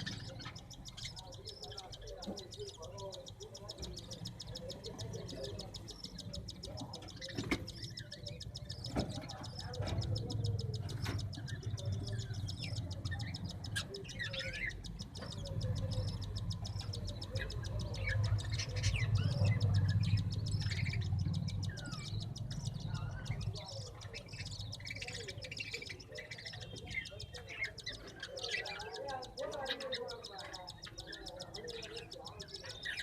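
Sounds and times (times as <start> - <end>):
small birds chirping: 0.0 - 33.0
steady low hum: 0.0 - 33.0.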